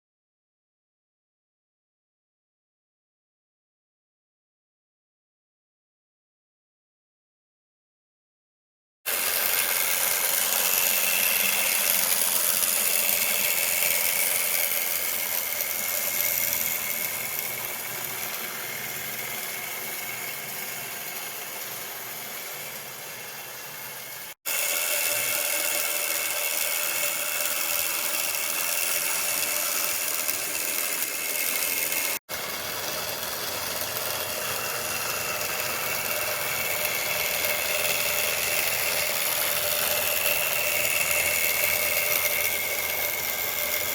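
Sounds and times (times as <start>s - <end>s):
model locomotive motor whining: 9.1s - 43.9s.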